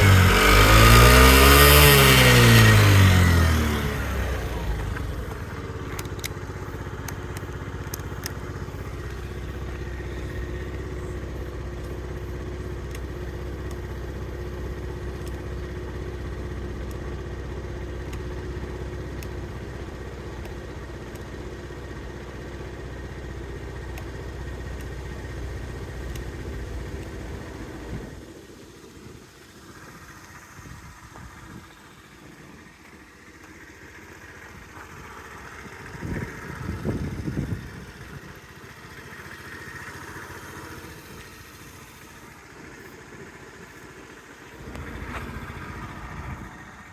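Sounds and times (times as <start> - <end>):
scooter engine idling: 0.0 - 46.9.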